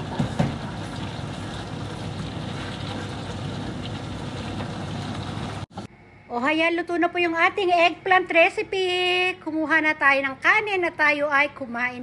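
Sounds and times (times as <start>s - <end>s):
vegetables sizzling in a frying pan: 0.0s - 5.7s.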